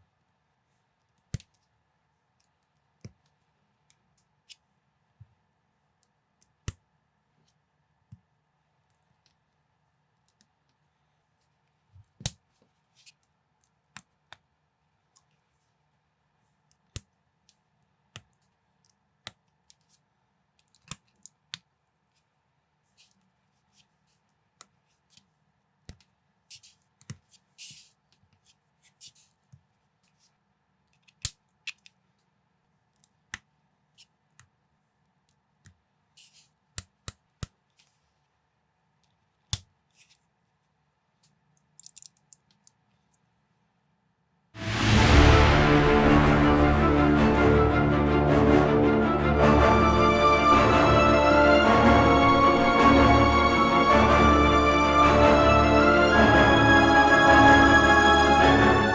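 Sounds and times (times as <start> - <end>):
plastic bricks clicking together: 41.6 - 42.8.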